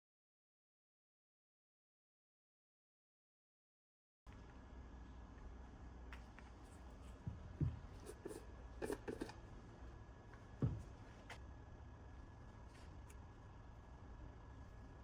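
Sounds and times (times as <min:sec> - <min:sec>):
low steady hum: 0:04.3 - 0:15.0.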